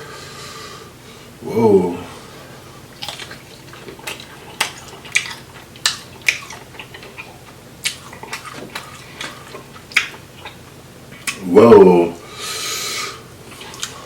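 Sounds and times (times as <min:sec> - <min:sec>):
wet clicks and smacks of eating: 0:02.9 - 0:11.4, 0:13.4 - 0:14.0.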